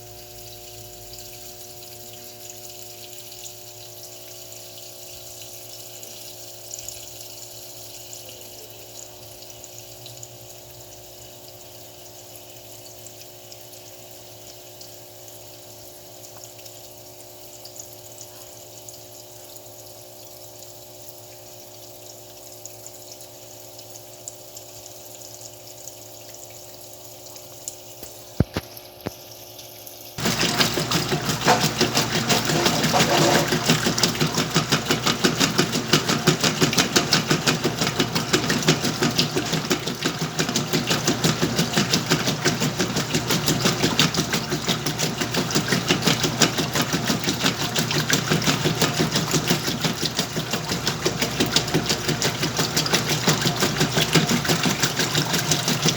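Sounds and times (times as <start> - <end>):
washing machine motor agitating: 0.0 - 18.7, 23.7 - 55.9
washing machine filling with water: 0.0 - 55.9.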